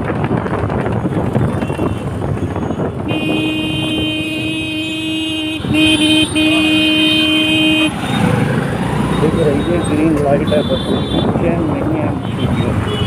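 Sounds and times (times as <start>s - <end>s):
traffic rumble: 0.0s - 13.0s
wind on microphone: 0.0s - 13.0s
vehicle horn blast: 3.0s - 8.0s.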